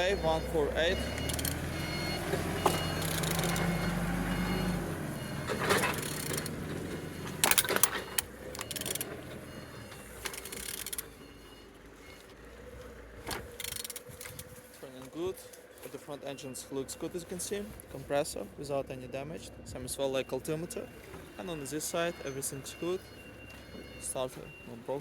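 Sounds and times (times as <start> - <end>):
engine mechanical clicks and knocks: 0.8 - 4.6, 5.2 - 15.1.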